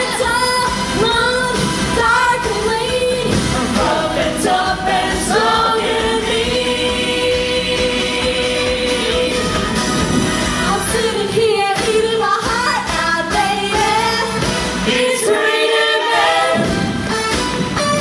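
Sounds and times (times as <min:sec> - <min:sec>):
live pop band: 0:00.0 - 0:18.0
voices singing together: 0:01.8 - 0:09.8, 0:10.7 - 0:17.0.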